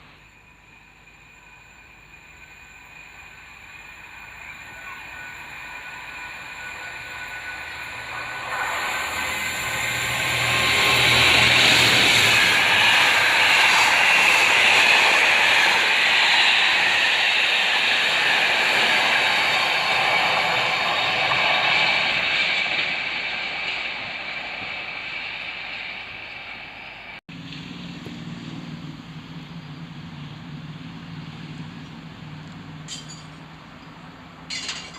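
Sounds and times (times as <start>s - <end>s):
train rushing past: 0.0s - 34.9s
low hum: 27.3s - 34.9s.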